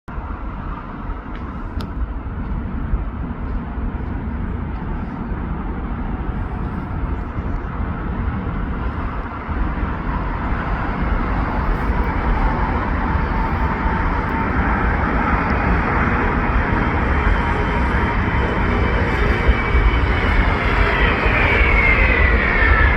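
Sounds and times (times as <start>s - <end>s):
jet airliner engine rumble: 0.1s - 22.9s
thin jet whine: 8.5s - 22.9s.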